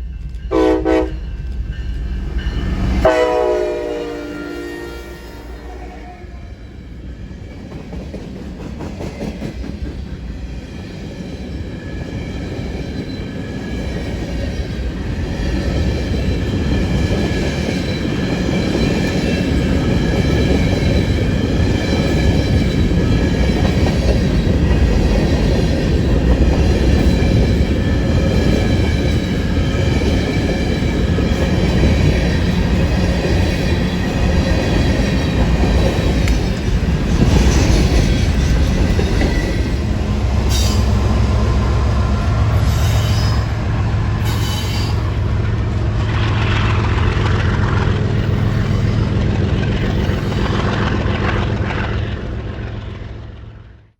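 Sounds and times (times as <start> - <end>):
train rumbling past: 0.0 - 53.9
high wheel squeal: 40.5 - 45.2.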